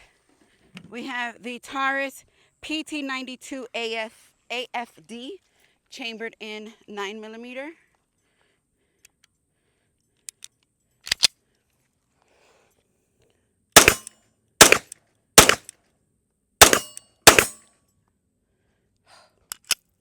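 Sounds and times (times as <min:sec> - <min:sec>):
pistol shots: 0:13.8 - 0:15.7, 0:16.6 - 0:17.6.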